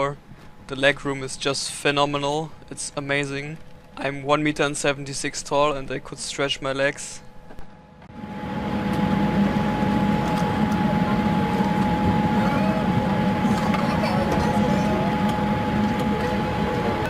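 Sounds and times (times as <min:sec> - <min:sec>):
airliner cabin hum: 0:06.9 - 0:17.0.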